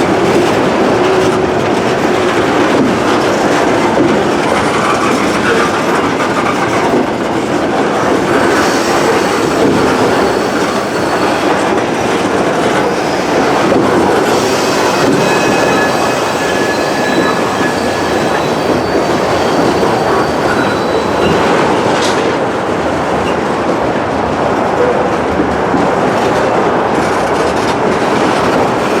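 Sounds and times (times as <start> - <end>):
train wheels rumbling on rail: 0.0 - 29.0
faint wheel squeals: 14.3 - 21.6.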